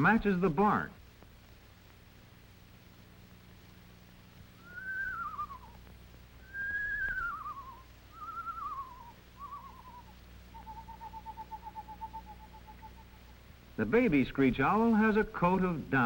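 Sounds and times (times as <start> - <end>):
owl quavering whinnies: 4.6 - 5.8, 6.4 - 13.3
owl trill: 4.6 - 13.4.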